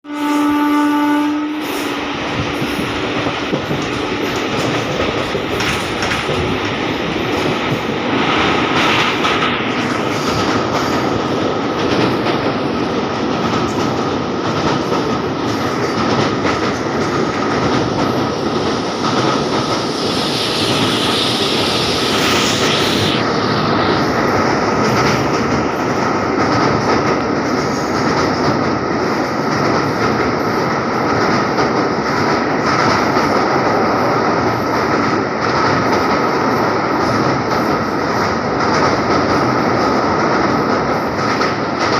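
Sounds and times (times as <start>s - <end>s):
train wheels clattering on rails: 1.6s - 22.4s, 23.6s - 41.9s
bright hiss: 18.4s - 24.4s.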